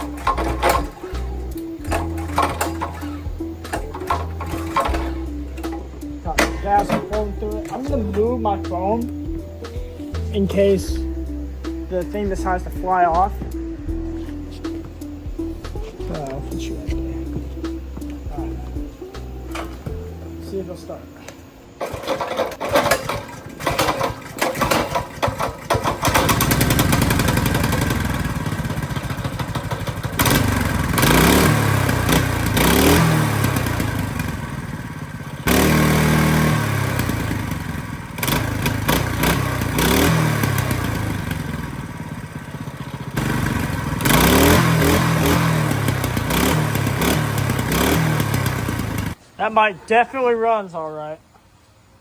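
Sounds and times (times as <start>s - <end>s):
small engine sputtering and revving: 0.0s - 8.1s, 21.8s - 49.2s.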